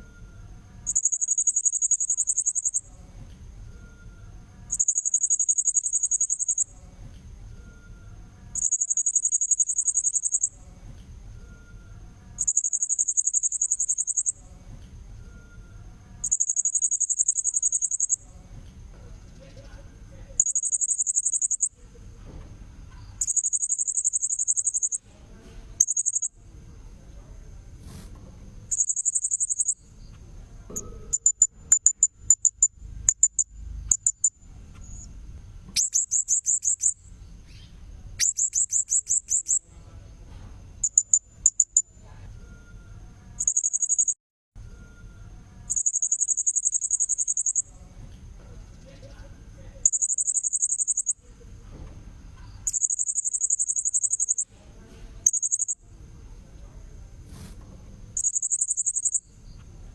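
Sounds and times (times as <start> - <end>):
faint high-pitched tone: 0.0 - 18.2, 39.2 - 47.8
short sharp chirps: 23.2 - 25.0, 28.7 - 29.9, 52.7 - 54.4, 55.3 - 55.8, 58.2 - 59.2.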